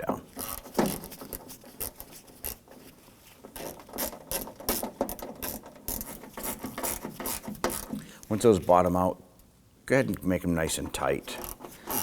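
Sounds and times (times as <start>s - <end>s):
hand ratchet clicking: 0.4s - 2.6s, 3.6s - 8.0s, 11.4s - 12.0s.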